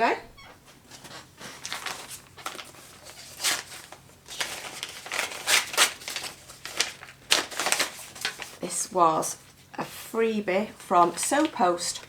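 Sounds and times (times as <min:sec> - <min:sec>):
packaging crinkling and tearing: 0:00.9 - 0:08.6.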